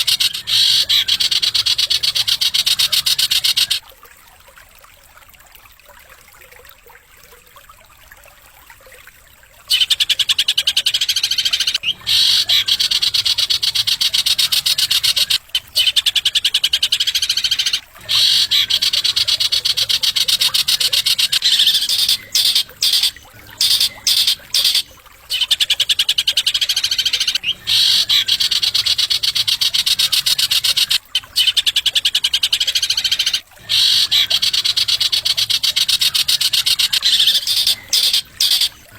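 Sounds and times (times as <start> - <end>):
songbird buzzy trill: 0.0 - 3.8, 9.7 - 38.9.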